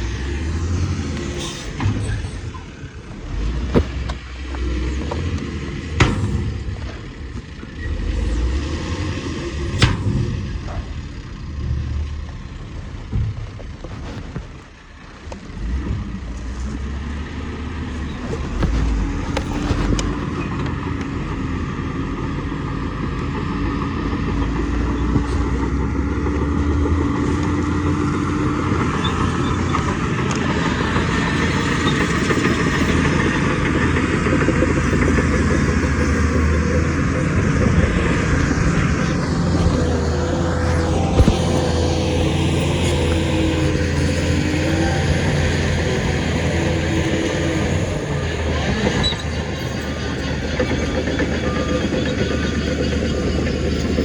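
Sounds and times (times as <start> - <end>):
heavy diesel machinery running: 0.0 - 54.0
steady whine: 35.5 - 54.0.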